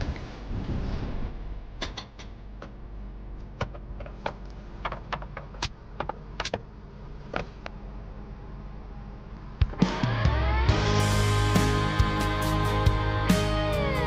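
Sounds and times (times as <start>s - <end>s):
low steady hum: 0.0s - 9.7s.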